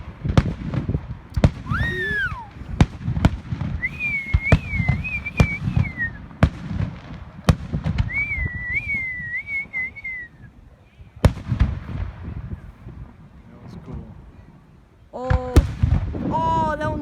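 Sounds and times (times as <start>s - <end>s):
fireworks bangs: 0.0s - 9.8s
fireworks whistling: 1.4s - 3.0s, 3.8s - 6.3s, 8.0s - 10.4s.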